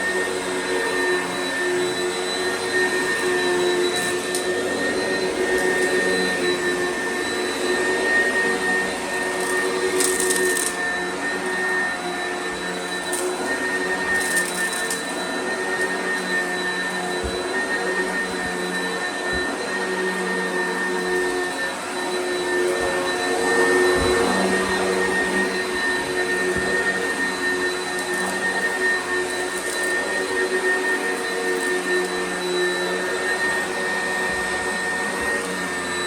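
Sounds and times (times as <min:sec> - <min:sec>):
vacuum cleaner on carpet: 0:00.0 - 0:36.0.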